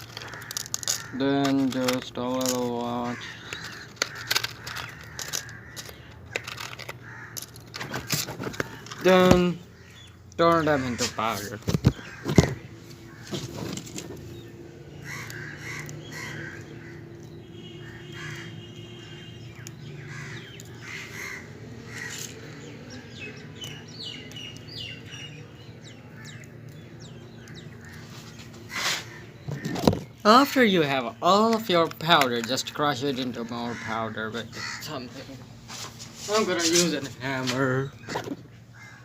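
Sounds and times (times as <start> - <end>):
match heads scraping: 28.0 - 29.2.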